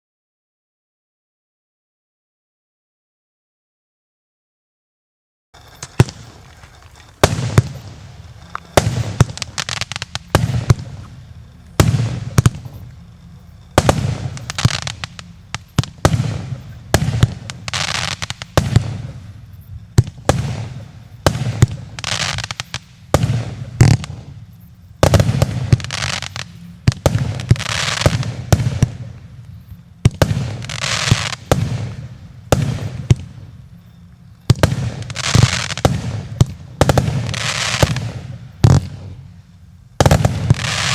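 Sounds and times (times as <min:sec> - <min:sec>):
firework bangs with hiss: 0:05.6 - 0:40.9.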